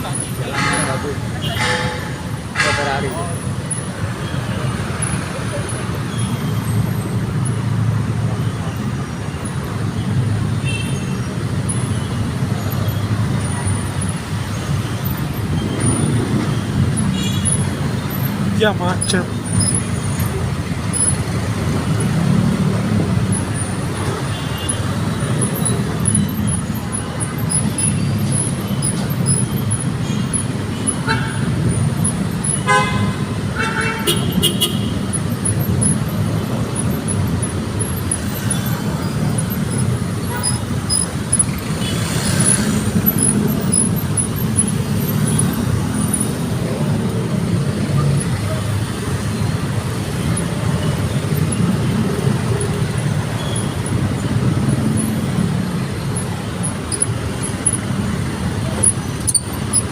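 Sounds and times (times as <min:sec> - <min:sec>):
road traffic rumble: 0:00.0 - 0:59.9
car horn toots: 0:00.4 - 0:03.2, 0:30.1 - 0:31.6, 0:32.4 - 0:35.2.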